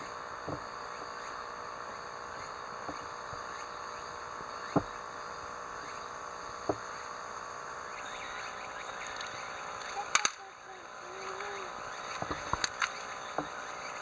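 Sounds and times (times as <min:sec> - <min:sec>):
steady background hiss: 0:00.0 - 0:14.0
sharp clicks: 0:00.4 - 0:14.0.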